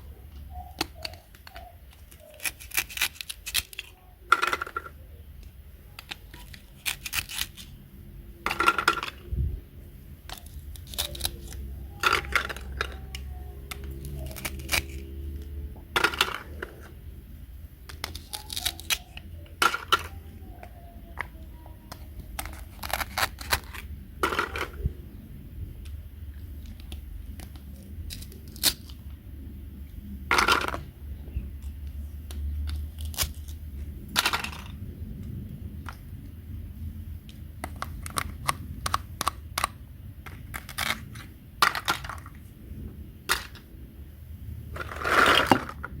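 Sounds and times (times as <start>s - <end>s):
plastic toy pieces clicking: 0.5s - 7.7s, 8.4s - 9.3s, 10.2s - 16.8s, 17.8s - 24.9s, 26.6s - 29.0s, 32.3s - 36.0s, 37.2s - 42.4s
rustling scrapes: 44.7s - 46.0s.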